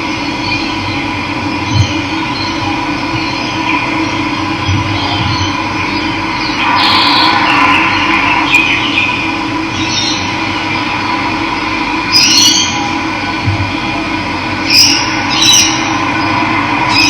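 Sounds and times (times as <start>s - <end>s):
birds chirping: 0.5s - 11.0s, 14.6s - 17.0s.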